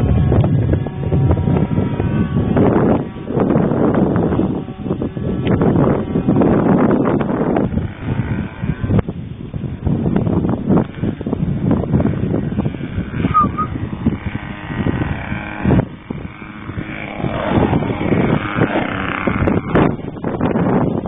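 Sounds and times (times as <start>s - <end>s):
propeller plane engine droning: 0.0s - 21.0s
wind buffeting microphone: 0.0s - 21.0s.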